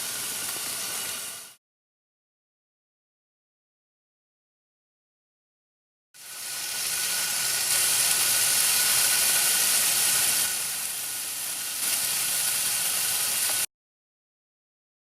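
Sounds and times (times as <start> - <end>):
meat sizzling on a grill: 0.0 - 1.6, 6.2 - 13.7.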